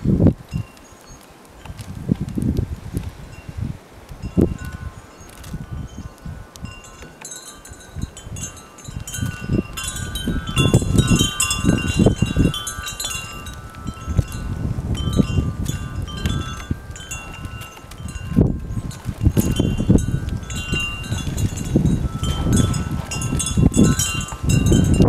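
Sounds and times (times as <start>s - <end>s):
wind buffeting microphone: 0.0s - 25.0s
metal wind chimes ringing: 0.5s - 1.9s, 4.2s - 25.0s.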